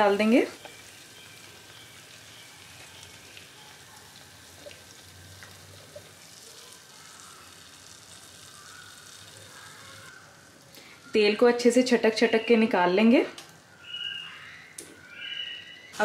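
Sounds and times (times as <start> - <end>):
batter sizzling in hot fat: 0.0 - 11.1.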